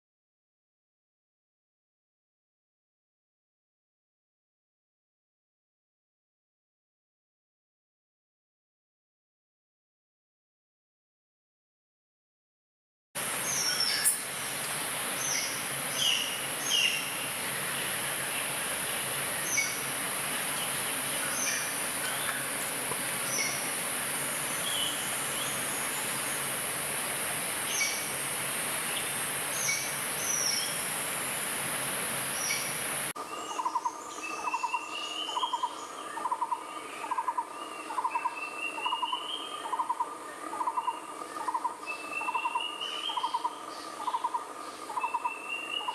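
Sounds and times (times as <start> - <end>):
steady high hiss: 13.2 - 45.9
birds chirping: 13.3 - 40.0.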